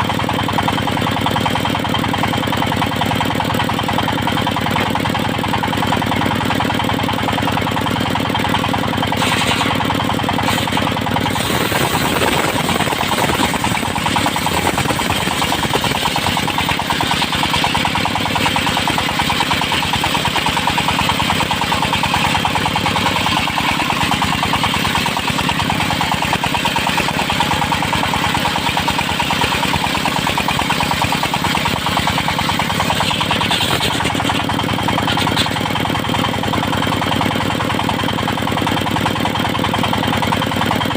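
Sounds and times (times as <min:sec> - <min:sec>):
engine running with rapid firing beat: 0:00.0 - 0:40.9.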